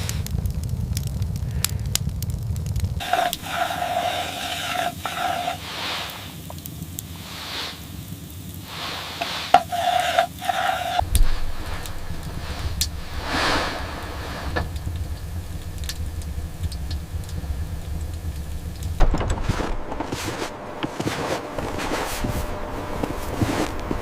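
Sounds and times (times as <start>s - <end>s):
low rumble: 0.0s - 3.0s, 11.0s - 24.0s
blizzard wind gusts: 0.0s - 24.0s.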